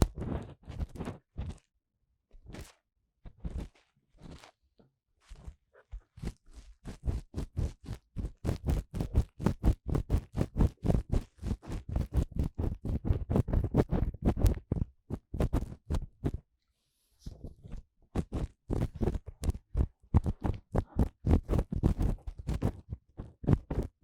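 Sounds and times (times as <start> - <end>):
tool scraping in microphone ear: 0.0 - 1.6.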